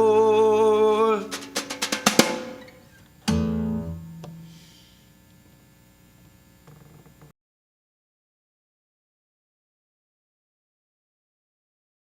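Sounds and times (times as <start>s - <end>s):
blues band playing live: 1.2s - 2.7s, 3.3s - 4.4s
drum fill: 1.2s - 4.7s
cymbal crash: 3.3s - 4.8s.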